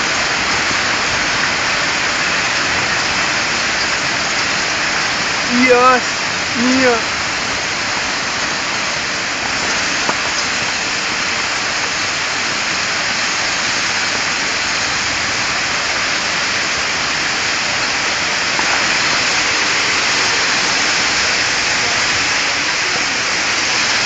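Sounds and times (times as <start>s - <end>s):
torrential rain pouring: 0.0s - 24.0s.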